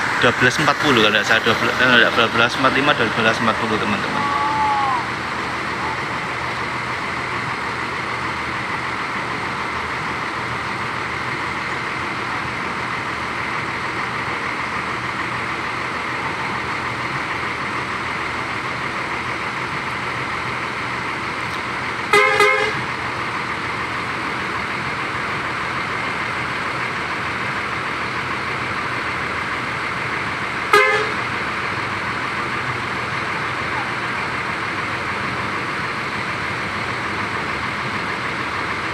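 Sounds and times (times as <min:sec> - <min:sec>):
buses idling: 0:00.0 - 0:38.9
vehicle horn blast: 0:22.1 - 0:22.9, 0:30.7 - 0:31.3.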